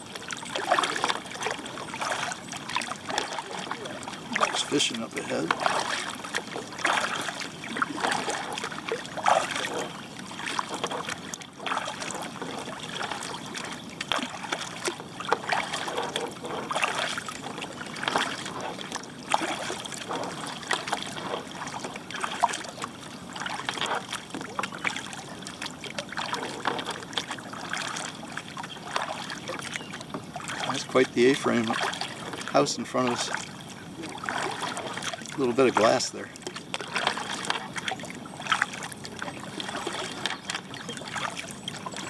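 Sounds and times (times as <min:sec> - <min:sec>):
kayak paddle splashing water: 0:00.0 - 0:42.0.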